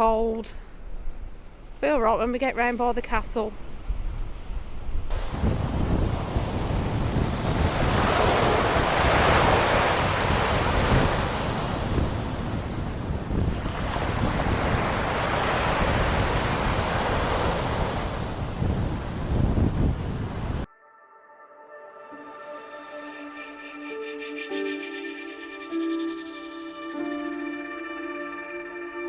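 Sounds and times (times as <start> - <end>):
wind buffeting microphone: 3.6 - 20.7
waves breaking on shore: 5.1 - 20.7.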